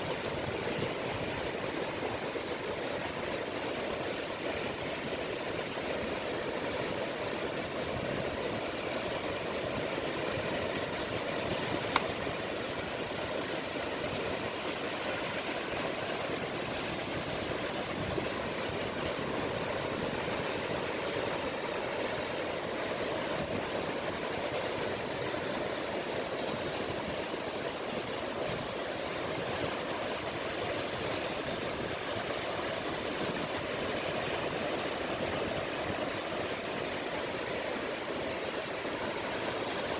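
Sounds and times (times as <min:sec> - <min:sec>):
small waves washing on shore: 0:00.0 - 0:39.9
sharp click: 0:11.9 - 0:12.2.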